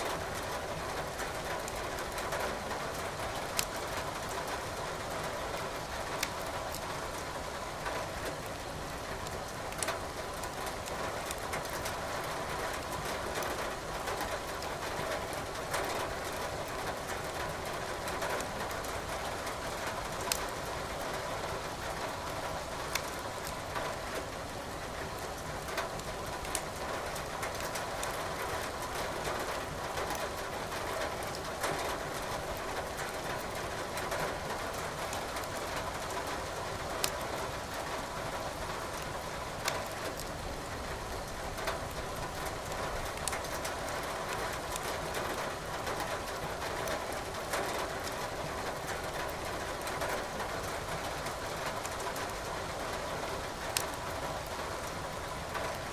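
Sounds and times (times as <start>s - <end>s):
steady rain: 0.0s - 55.9s
wood crackling in fireplace: 3.5s - 3.8s, 6.2s - 7.3s, 9.7s - 11.5s, 20.2s - 20.6s, 22.6s - 23.8s, 25.9s - 26.8s, 41.8s - 43.5s, 53.5s - 54.0s.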